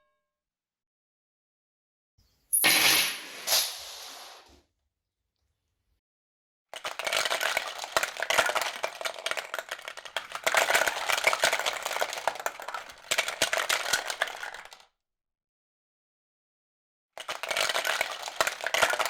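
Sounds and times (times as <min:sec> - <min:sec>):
rattling and clicking clatter: 0:06.8 - 0:14.8.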